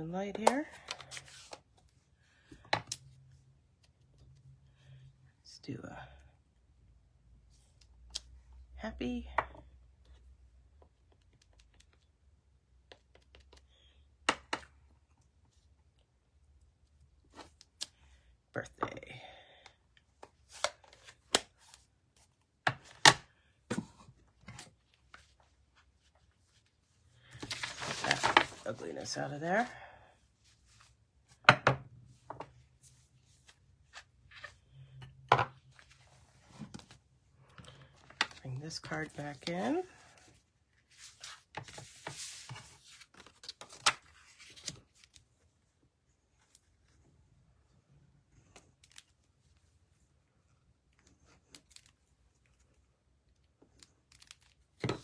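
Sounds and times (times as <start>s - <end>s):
paper sliding and rustling: 27.4s - 28.6s, 40.9s - 44.8s.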